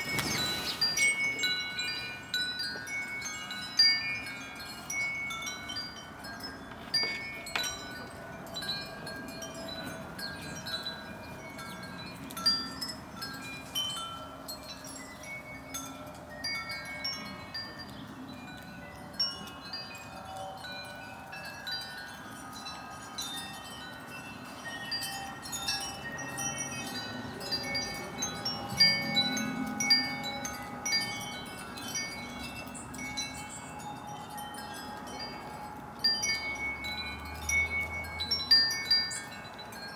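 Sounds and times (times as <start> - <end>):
chimes ringing: 0.0 - 39.9.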